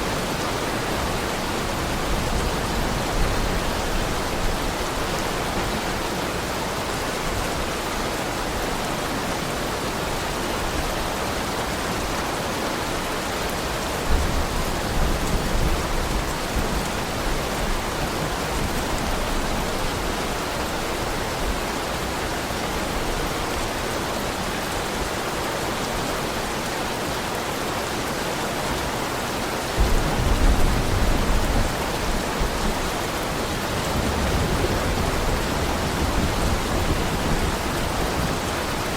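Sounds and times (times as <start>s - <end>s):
heavy rain: 0.0s - 38.9s
distant thunder rumbles: 29.8s - 38.9s.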